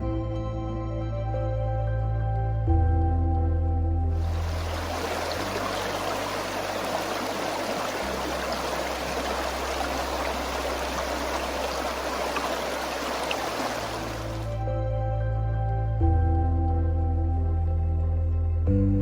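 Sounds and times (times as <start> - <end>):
soft low music drone: 0.0 - 19.0
water rushing over rocks: 4.2 - 14.6.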